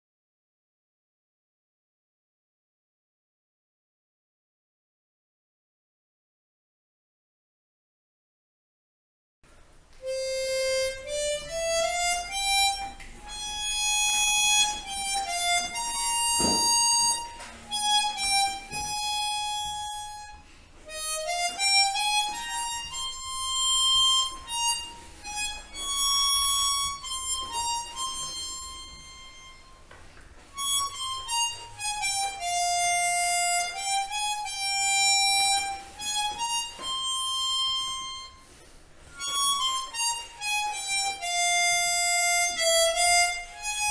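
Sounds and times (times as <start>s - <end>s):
harmonica melody: 9.9s - 43.9s.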